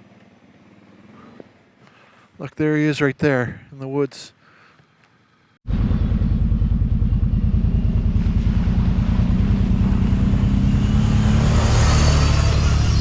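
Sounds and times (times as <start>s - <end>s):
atv engine running: 0.0s - 1.5s, 5.7s - 13.0s.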